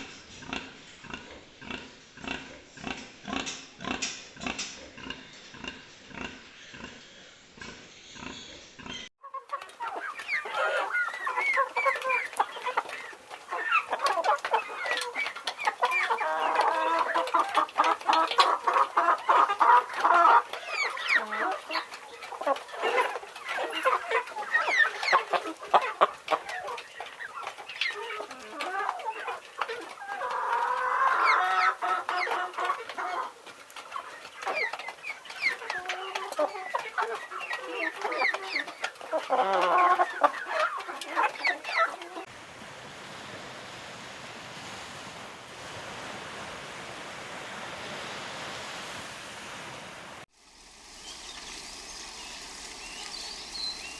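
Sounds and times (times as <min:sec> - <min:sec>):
chickens clucking: 0:07.6 - 0:42.3, 0:51.0 - 0:53.9.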